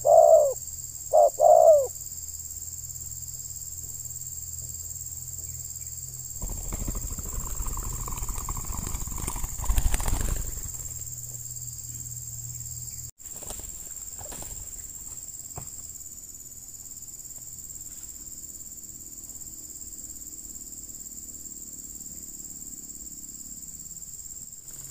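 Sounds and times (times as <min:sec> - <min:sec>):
dove cooing: 0:00.0 - 0:01.9, 0:06.4 - 0:11.0
high insect whine: 0:00.0 - 0:24.9.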